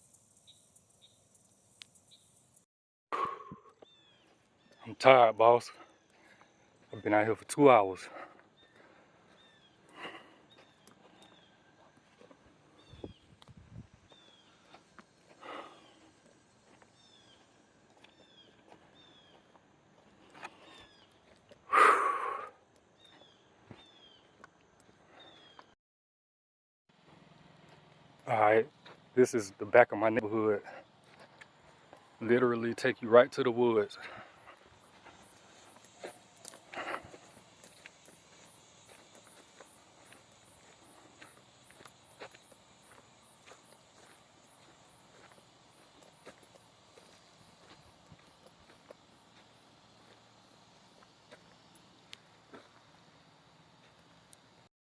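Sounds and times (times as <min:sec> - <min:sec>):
bird chirping: 0:00.0 - 0:02.6, 0:03.2 - 0:13.4, 0:14.0 - 0:19.6, 0:20.3 - 0:24.4
insect chirping: 0:00.0 - 0:02.6, 0:20.4 - 0:25.5, 0:28.2 - 0:54.6
footsteps on forest ground: 0:03.2 - 0:25.8, 0:26.9 - 0:54.6.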